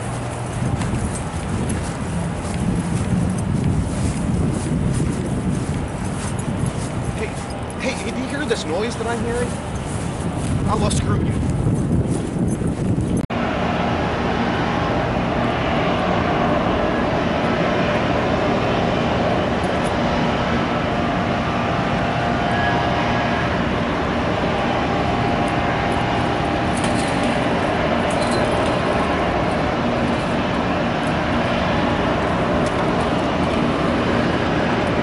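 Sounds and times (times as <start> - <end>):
vehicle noise rumble: 0.0 - 35.0.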